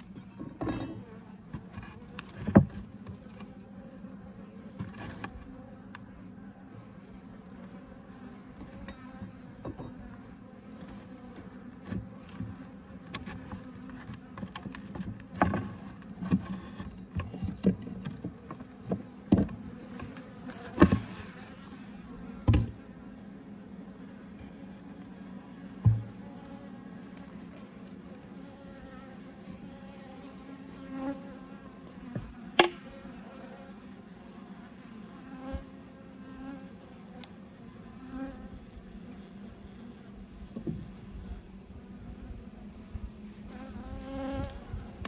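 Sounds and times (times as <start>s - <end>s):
honeybees buzzing: 0.0s - 45.0s
sharp knocks and clicks: 32.6s - 32.8s.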